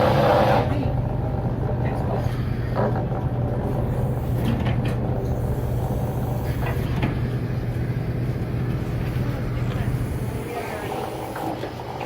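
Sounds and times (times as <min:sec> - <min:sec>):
boat engine droning: 0:00.0 - 0:04.4.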